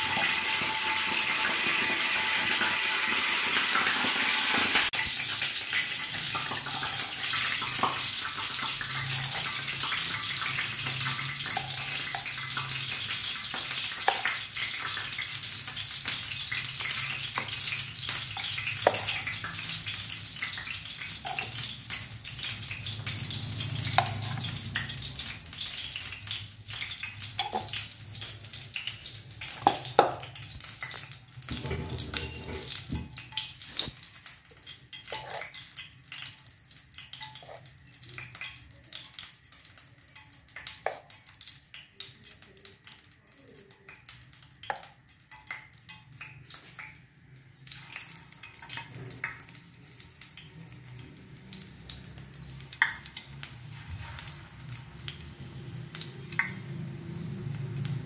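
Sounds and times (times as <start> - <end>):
hot oil sizzling in frying pan: 0.0 - 58.0.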